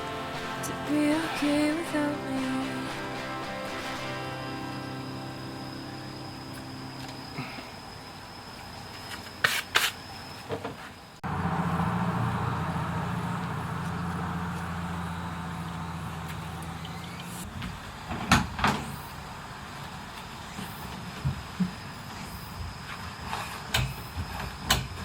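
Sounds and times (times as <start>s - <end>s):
two-stroke engine running: 0.0s - 8.2s.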